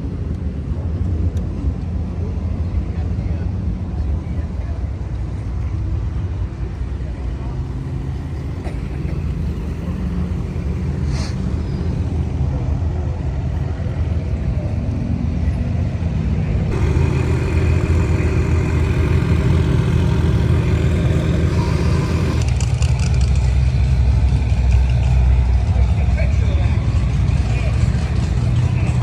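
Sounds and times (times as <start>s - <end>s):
car engines in slow traffic: 0.0s - 29.0s
loud engine passing close by: 16.6s - 23.0s.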